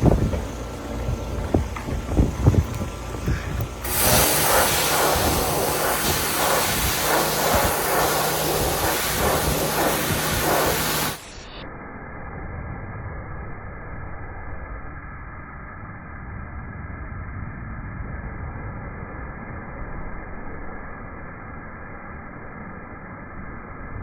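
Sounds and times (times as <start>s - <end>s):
machine humming: 0.0s - 11.5s
pressure washer water jet hissing: 0.0s - 11.5s.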